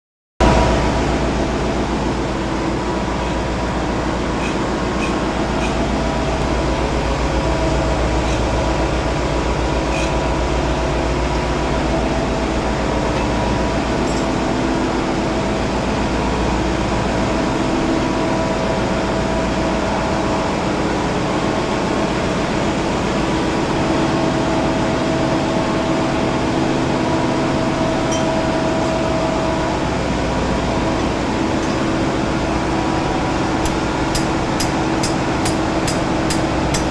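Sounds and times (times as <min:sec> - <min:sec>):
diesel engine running: 0:00.4 - 0:36.9.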